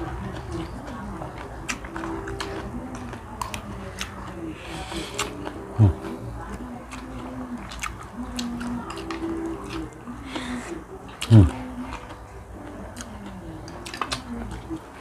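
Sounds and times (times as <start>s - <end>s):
chewing and lip smacks: 0.0s - 15.0s.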